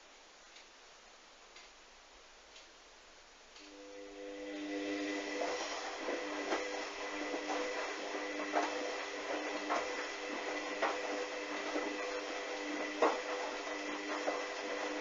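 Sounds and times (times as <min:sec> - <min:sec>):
washing machine motor whine: 0:03.7 - 0:15.0.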